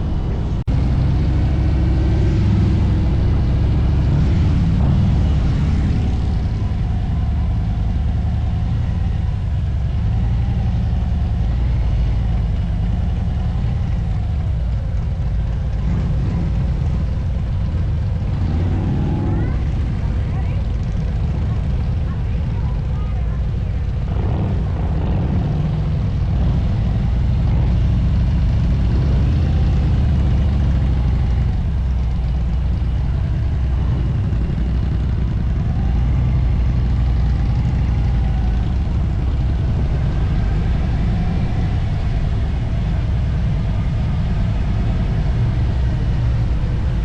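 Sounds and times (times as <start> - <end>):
motorcycle engine running: 0.0 - 47.0
wind rumble on microphone: 0.0 - 47.0.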